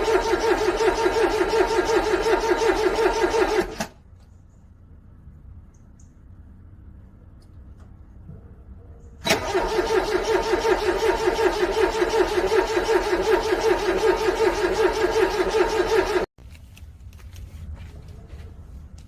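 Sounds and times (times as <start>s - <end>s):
car starter motor cranking: 0.0s - 4.0s, 9.2s - 16.3s.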